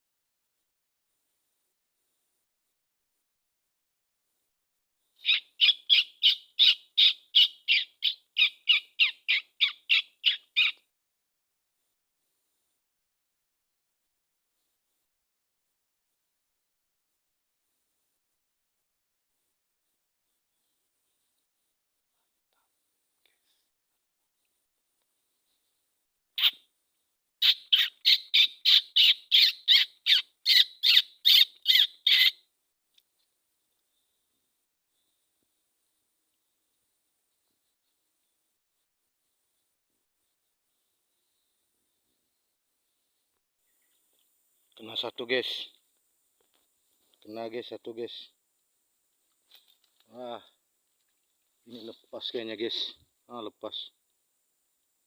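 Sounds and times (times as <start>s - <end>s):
bird harsh calls: 5.2s - 10.8s, 27.4s - 32.4s.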